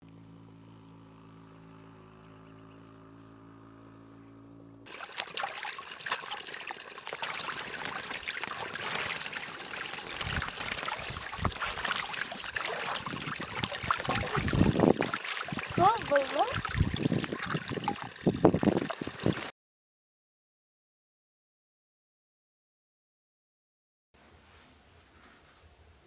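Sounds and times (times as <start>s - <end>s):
small clicks and splashes: 4.9s - 19.5s
trickling water: 4.9s - 19.5s.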